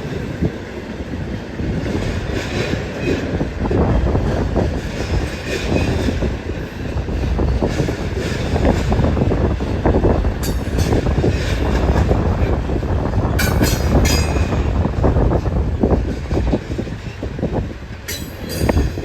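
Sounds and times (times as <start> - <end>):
train cars rumbling past: 0.0 - 19.0
wheels clacking over rail joints: 4.2 - 19.0.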